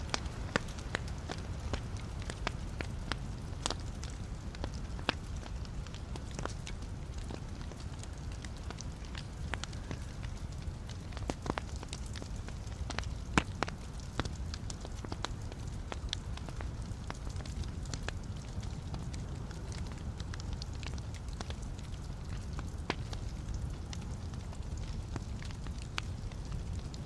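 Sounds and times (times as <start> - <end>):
log fire crackling: 0.0 - 27.0.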